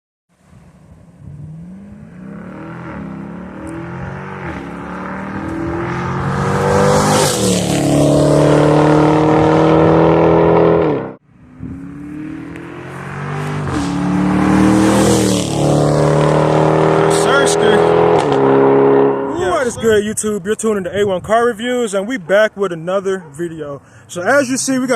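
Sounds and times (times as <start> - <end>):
car engine exhaust revving: 0.9 - 19.4.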